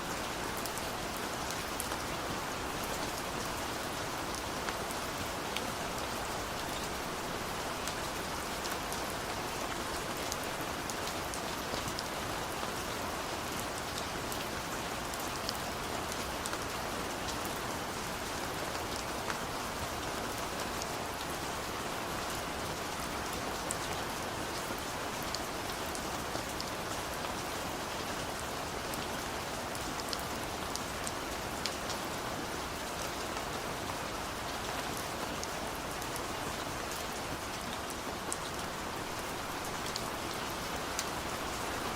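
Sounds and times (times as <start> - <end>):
rain falling: 0.0 - 41.9
raindrops pattering on surfaces: 22.4 - 41.9.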